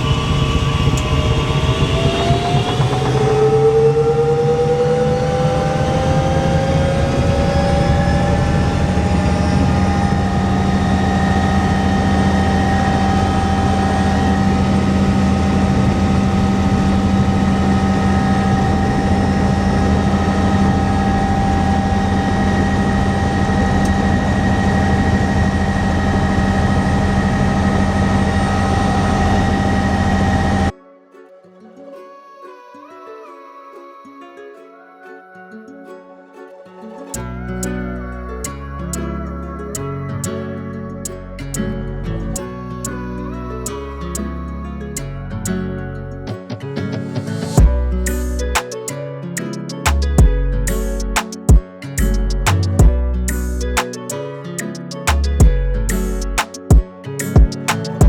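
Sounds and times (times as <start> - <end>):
helicopter drone with whine: 0.0 - 30.7.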